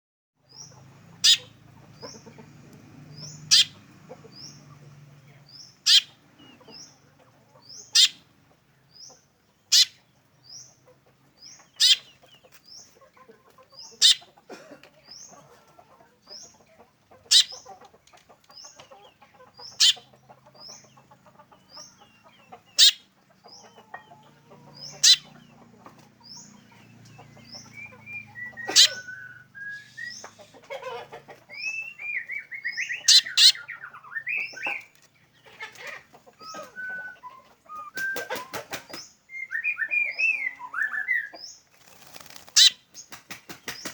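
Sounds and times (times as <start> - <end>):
high rising bird chirps: 3.1 - 4.6, 5.5 - 6.6, 9.7 - 10.6, 11.5 - 12.2, 19.6 - 20.1, 22.7 - 23.8, 24.7 - 25.5, 26.2 - 30.6, 31.6 - 34.9, 36.4 - 42.8
bird sharp loud call: 28.4 - 30.5, 42.6 - 42.8.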